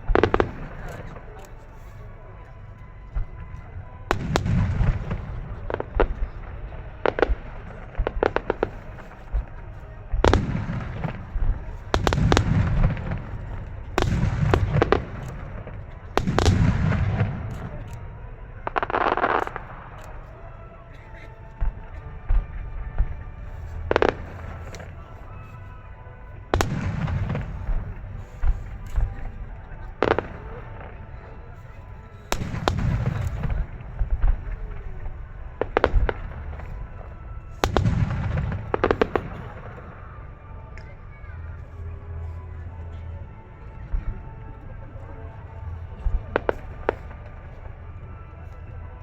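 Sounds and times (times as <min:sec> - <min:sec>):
firework shells booming: 0:04.1 - 0:20.1, 0:32.3 - 0:40.0.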